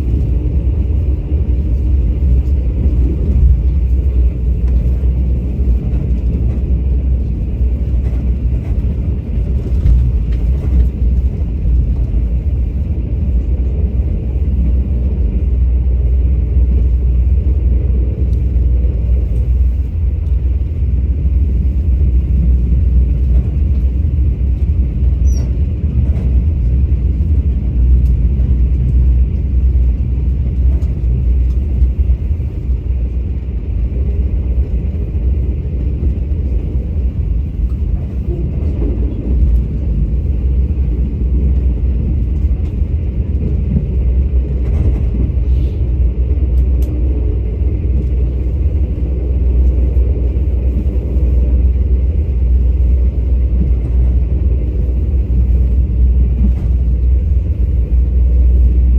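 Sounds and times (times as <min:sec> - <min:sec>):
train rumbling: 0:00.0 - 0:58.9.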